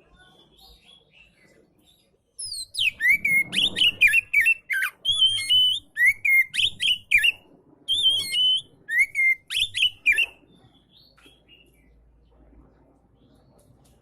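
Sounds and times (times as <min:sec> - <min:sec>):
bird singing whistled notes: 0:02.4 - 0:11.8.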